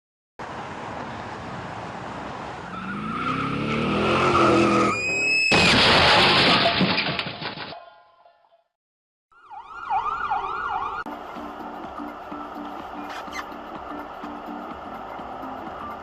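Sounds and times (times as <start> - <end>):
loud crash of vehicles colliding: 5.4 - 7.8
debris clattering: 5.5 - 8.0
tyre squeal: 13.0 - 13.6.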